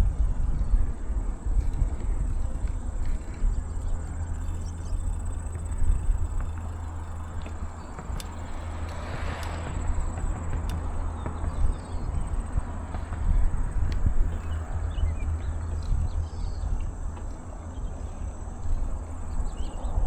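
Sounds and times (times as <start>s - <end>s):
faint high insect-like tone: 0.0s - 9.9s
bicycle riding noise: 0.0s - 20.0s
wind buffeting microphone: 0.0s - 20.0s.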